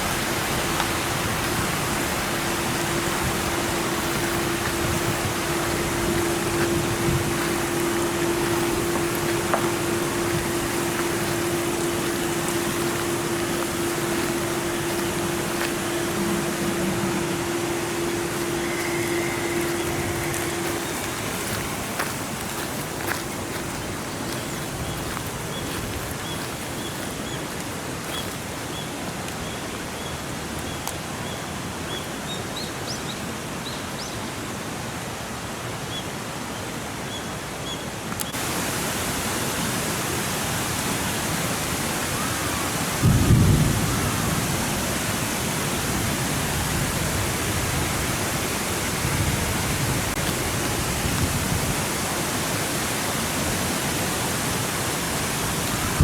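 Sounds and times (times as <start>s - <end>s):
rain hissing: 0.0s - 29.2s, 38.3s - 56.0s.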